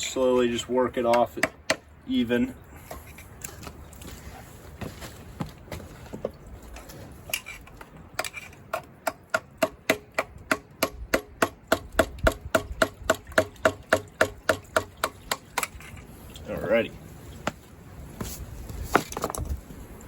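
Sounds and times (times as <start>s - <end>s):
hammer tapping on metal: 8.7s - 15.4s.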